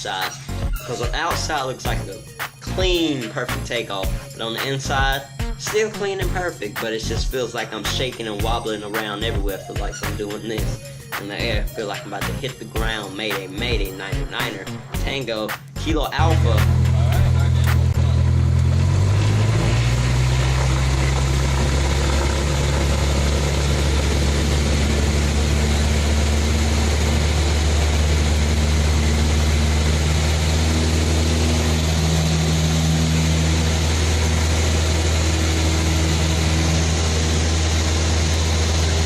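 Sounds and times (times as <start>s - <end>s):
plane engine droning: 15.6s - 39.0s.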